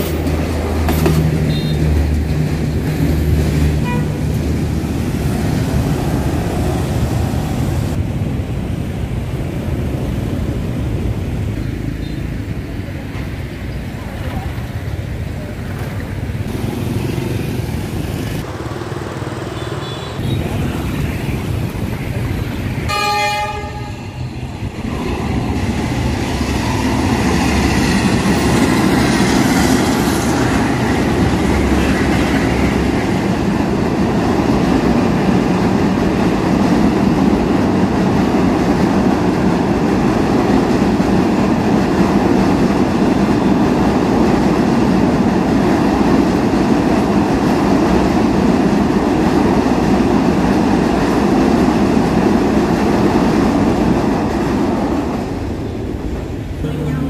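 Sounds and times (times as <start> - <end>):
train wheels rumbling on rails: 0.0 - 19.3, 20.2 - 57.0
train horn blast: 3.8 - 4.3, 22.9 - 24.2.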